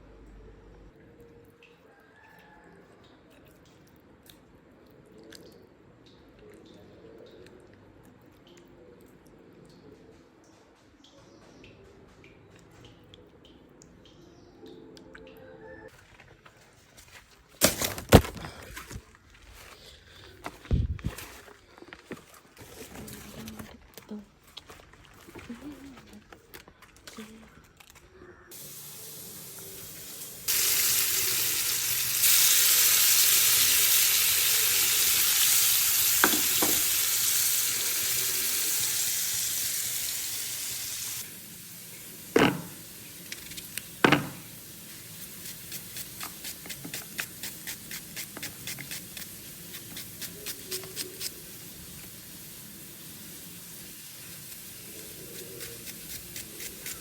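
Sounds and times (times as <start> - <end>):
food sizzling in hot oil: 28.5 - 57.0.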